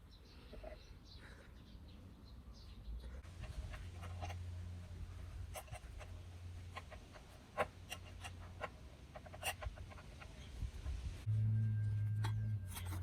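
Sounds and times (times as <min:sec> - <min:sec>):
faint low hum: 0:00.1 - 0:13.0
small parts clicking and scraping: 0:03.2 - 0:11.1.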